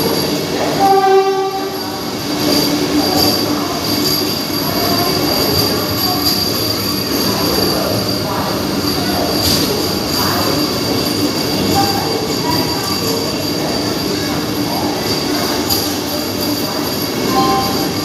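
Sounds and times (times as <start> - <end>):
train coaches rumbling past: 0.0 - 18.0
high-pitched tone: 17.2 - 18.0.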